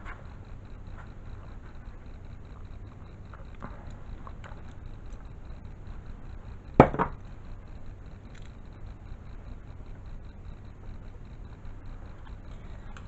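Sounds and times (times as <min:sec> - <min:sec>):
hard object knocking on surface: 0:06.8 - 0:07.1.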